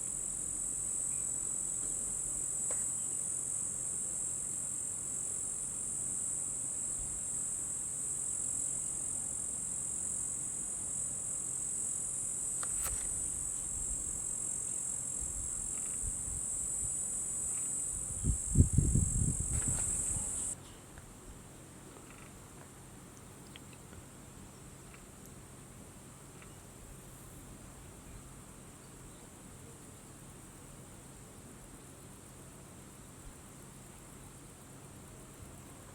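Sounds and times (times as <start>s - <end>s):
insect chorus drone: 0.0s - 20.6s, 21.9s - 35.9s.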